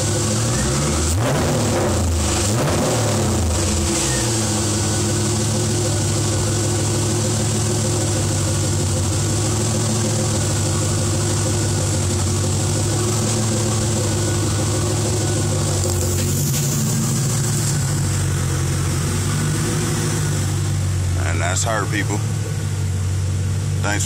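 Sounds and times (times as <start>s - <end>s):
car engine idling: 0.0s - 24.0s
brief hiss: 16.0s - 17.9s.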